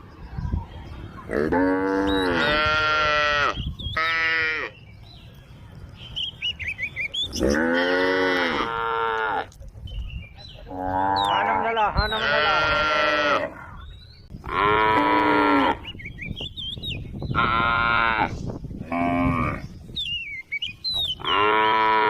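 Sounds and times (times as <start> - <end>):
cows mooing: 1.3 - 4.7, 7.3 - 9.6, 10.6 - 13.8, 14.4 - 15.9, 17.3 - 19.7, 21.2 - 22.0.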